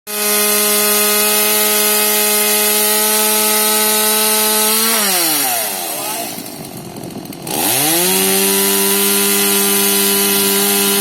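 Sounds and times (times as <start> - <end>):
chainsaw engine at high revs: 0.1 - 11.0
chain rasping through wood: 0.2 - 11.0.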